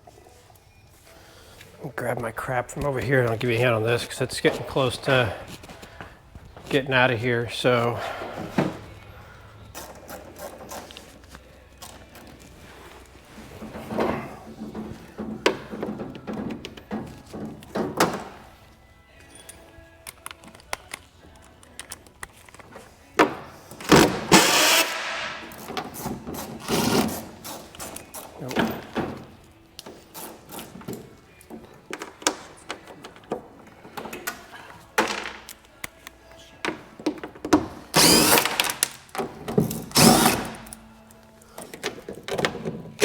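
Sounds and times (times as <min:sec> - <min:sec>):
faint background music: 0:00.0 - 0:43.0
tools and metal parts clanking: 0:06.6 - 0:18.6, 0:19.2 - 0:23.8, 0:24.6 - 0:36.0.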